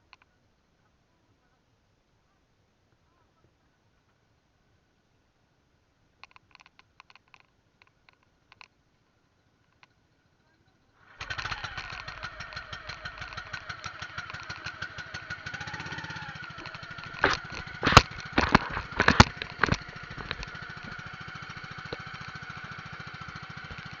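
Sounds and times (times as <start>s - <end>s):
small boat engine pulsing: 11.1s - 24.0s
sharp loud knocks: 11.2s - 21.1s.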